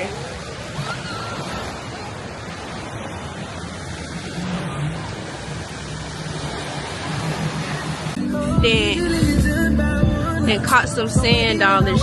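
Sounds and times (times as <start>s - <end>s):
ocean surf washing ashore: 0.0s - 12.0s.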